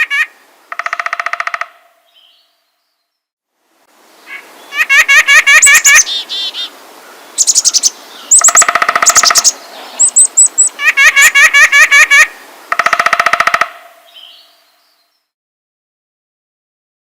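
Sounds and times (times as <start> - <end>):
songbirds trilling and chirping: 4.1 - 15.3.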